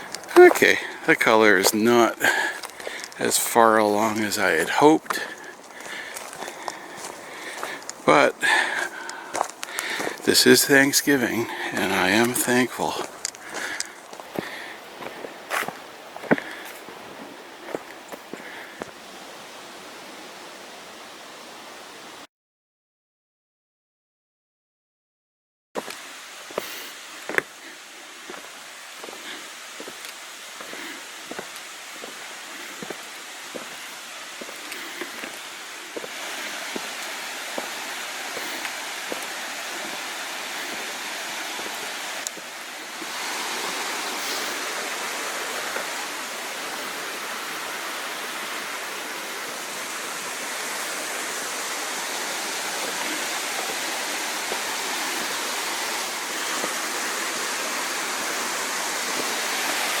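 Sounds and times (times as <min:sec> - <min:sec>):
creek water rushing: 0:00.0 - 0:22.2, 0:25.8 - 1:00.0
footsteps clicking: 0:01.6 - 0:03.2, 0:05.1 - 0:10.2, 0:12.2 - 0:16.8.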